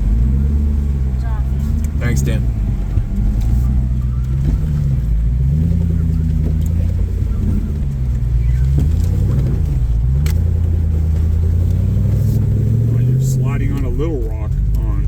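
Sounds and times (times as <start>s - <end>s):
engine running under load: 0.0s - 15.0s.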